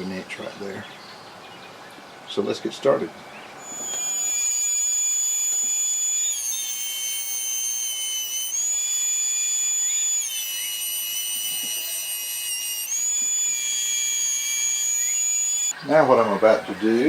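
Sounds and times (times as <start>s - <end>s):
power tool motor whining: 3.6s - 17.0s.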